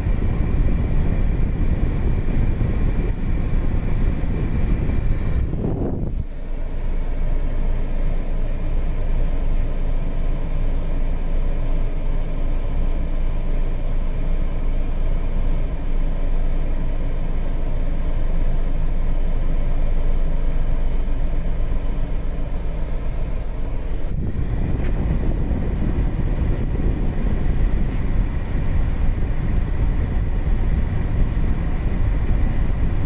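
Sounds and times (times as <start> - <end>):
air rushing from vents: 0.0 - 33.0
car engine idling hum: 0.0 - 33.0.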